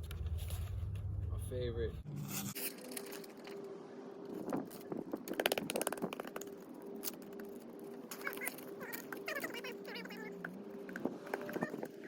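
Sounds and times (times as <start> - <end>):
griptape scraping and crinkling: 2.0 - 12.0
rapid crackles: 4.7 - 12.0.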